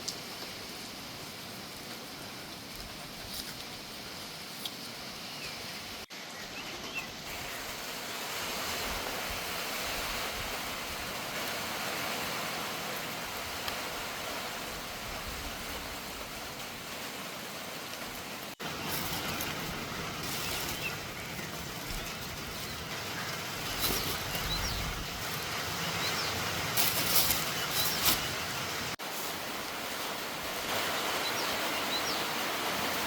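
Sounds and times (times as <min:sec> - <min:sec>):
heavy rain pouring: 0:07.2 - 0:33.0.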